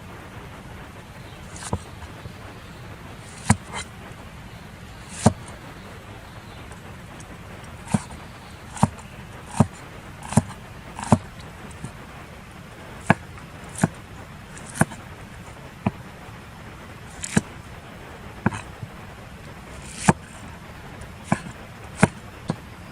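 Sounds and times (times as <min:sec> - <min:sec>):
chopping strikes: 0:01.4 - 0:02.1, 0:03.2 - 0:03.9, 0:05.0 - 0:05.6, 0:07.2 - 0:12.0, 0:13.0 - 0:15.0, 0:17.1 - 0:17.6, 0:18.4 - 0:18.9, 0:19.7 - 0:20.4, 0:21.0 - 0:22.6.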